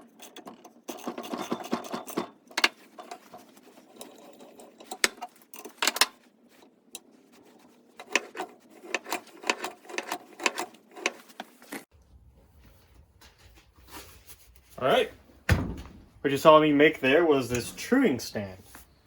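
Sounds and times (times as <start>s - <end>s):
tool clicking and knocking on metal: 0.0s - 11.6s.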